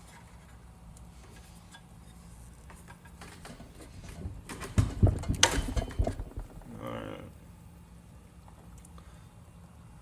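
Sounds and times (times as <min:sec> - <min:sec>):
steady low hum: 0:03.4 - 0:08.3.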